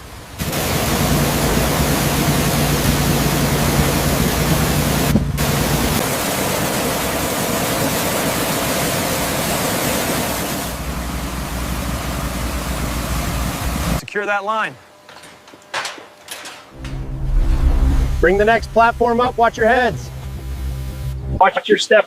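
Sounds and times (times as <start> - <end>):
low hum: 15.0 - 21.4
loud rushing noise: 16.7 - 21.4.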